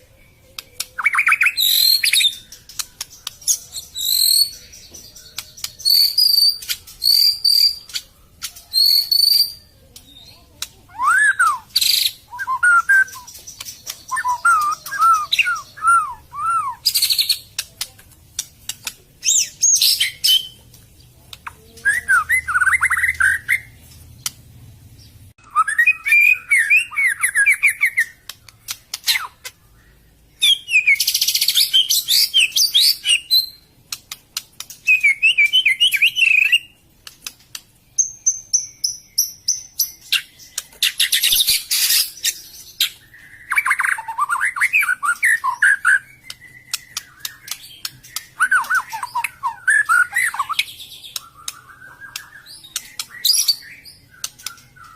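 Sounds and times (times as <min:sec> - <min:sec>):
harsh rasping bird calls: 0:00.0 - 0:20.7, 0:25.0 - 0:54.9
high thin repeated bird notes: 0:00.0 - 0:20.7.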